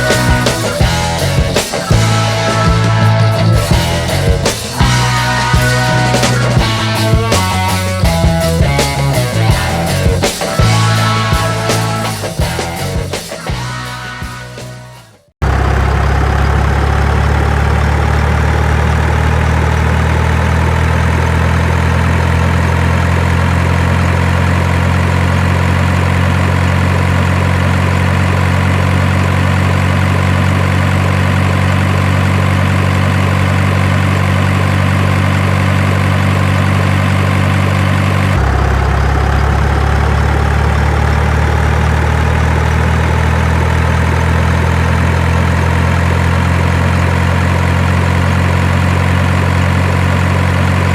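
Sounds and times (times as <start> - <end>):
truck engine idling: 0.0 - 50.9.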